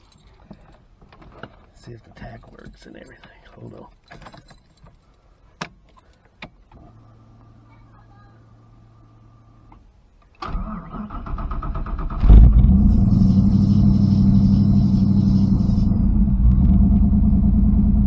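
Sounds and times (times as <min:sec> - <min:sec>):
engine cranking on starter: 0:10.4 - 0:17.9
car engine idling: 0:11.5 - 0:18.0.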